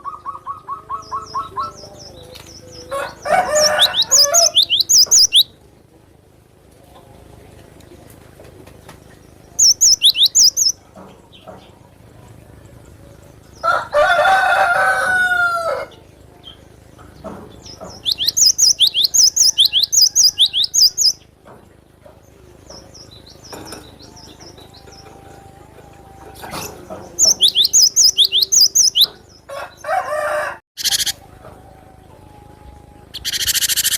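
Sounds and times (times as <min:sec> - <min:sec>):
rooster crowing: 0:02.7 - 0:05.4, 0:13.6 - 0:16.0, 0:18.6 - 0:21.1, 0:27.2 - 0:33.2
bird singing high repeated notes: 0:03.5 - 0:05.6, 0:09.6 - 0:10.8, 0:18.0 - 0:21.2, 0:27.2 - 0:29.2, 0:30.8 - 0:31.2.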